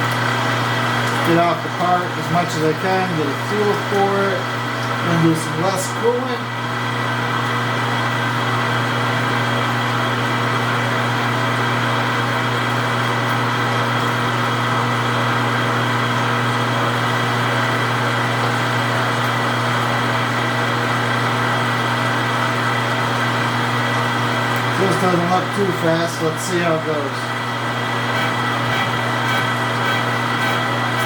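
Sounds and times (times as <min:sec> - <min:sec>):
metal lathe humming and hissing: 0:20.0 - 0:31.0.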